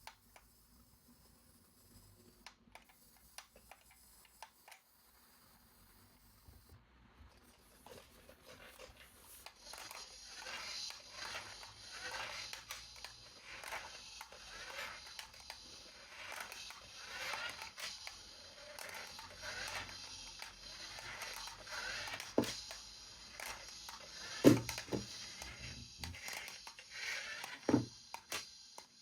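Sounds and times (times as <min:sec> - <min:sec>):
small clicks: 0:08.8 - 0:29.0.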